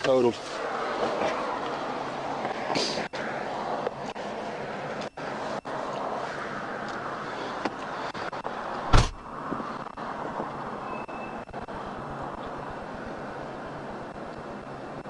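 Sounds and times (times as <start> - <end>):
steady rushing noise: 0.1 - 15.0
loud sharp thump: 8.9 - 9.2.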